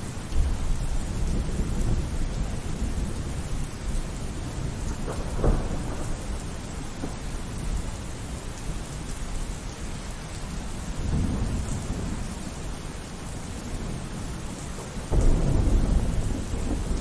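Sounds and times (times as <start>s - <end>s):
steady rain: 0.0s - 17.0s
rolling thunder: 0.1s - 8.4s, 10.9s - 17.0s
sharp thunder crack: 15.0s - 17.0s.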